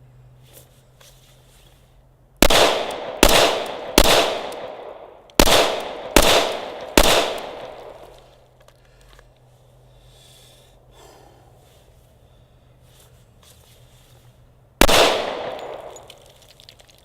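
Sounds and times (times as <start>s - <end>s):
pistol shots echoing: 2.4s - 8.1s, 14.8s - 16.2s.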